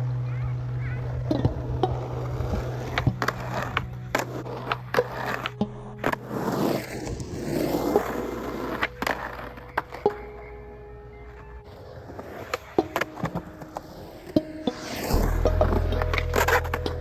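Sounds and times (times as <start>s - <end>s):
rough rolling and scraping: 0.0s - 17.0s
steady low hum: 14.0s - 17.0s.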